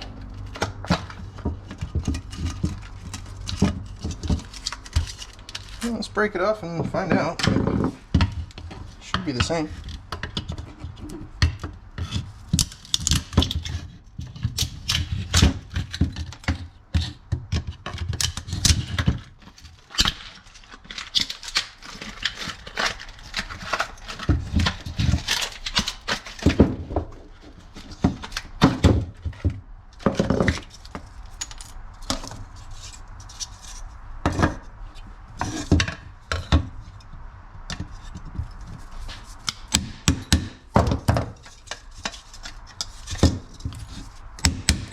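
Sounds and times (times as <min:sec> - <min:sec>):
hand tools clicking and rattling: 0:00.0 - 0:34.5.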